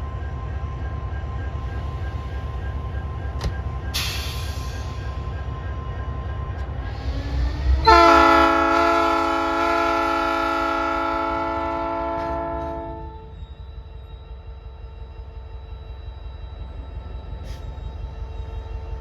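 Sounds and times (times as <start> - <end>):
low rumble of passing train: 0.0 - 19.0
train horn blast: 7.7 - 13.3.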